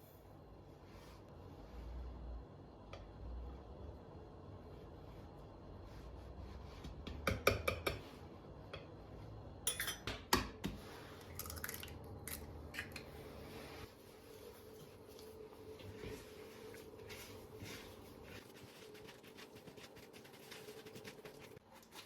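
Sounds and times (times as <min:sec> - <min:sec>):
utensils and dishes clinking: 0:09.7 - 0:10.2.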